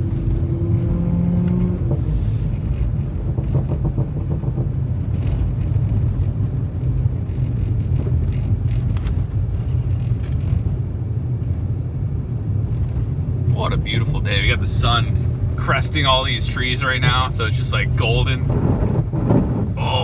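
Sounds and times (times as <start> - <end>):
car exhaust rumble: 0.0 - 20.0
exhaust crackles: 12.7 - 20.0.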